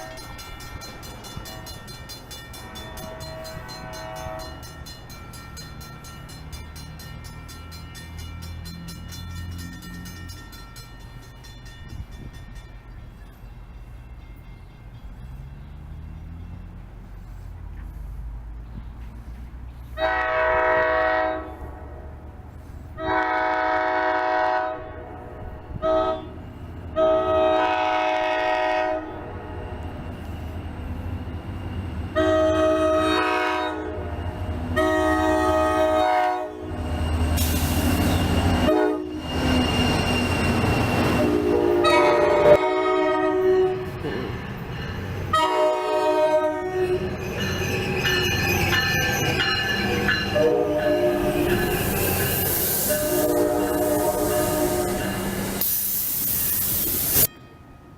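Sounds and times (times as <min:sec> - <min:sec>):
train horn blasts: 0:00.0 - 0:00.3, 0:02.6 - 0:04.8, 0:20.0 - 0:22.1, 0:23.0 - 0:29.7, 0:32.1 - 0:37.0, 0:38.4 - 0:39.5, 0:41.2 - 0:44.0, 0:45.3 - 0:47.1, 0:50.1 - 0:51.7, 0:52.8 - 0:55.8
train wheels rumbling on rail: 0:00.0 - 0:57.3.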